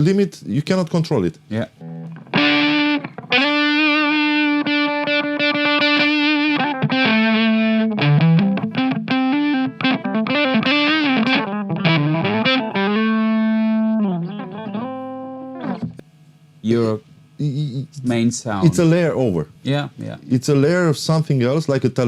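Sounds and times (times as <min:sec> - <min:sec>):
distorted electric guitar: 0:01.7 - 0:16.0.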